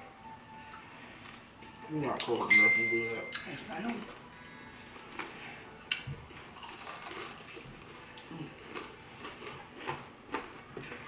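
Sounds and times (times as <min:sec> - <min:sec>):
chewing and biting food: 0:05.0 - 0:11.0.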